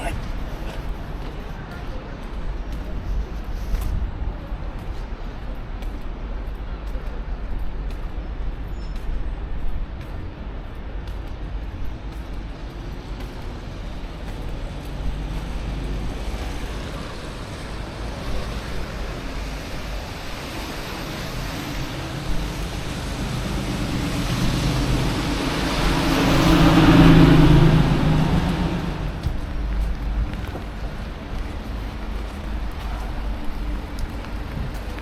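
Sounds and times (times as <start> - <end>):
steady low rumble: 0.0 - 35.0
motor vehicle passing: 20.9 - 30.8.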